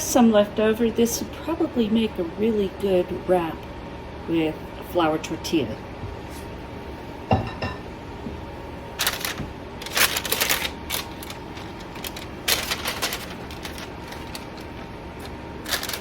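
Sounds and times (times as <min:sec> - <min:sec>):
low background hum: 0:00.0 - 0:16.0
parchment paper crinkling: 0:09.0 - 0:16.0.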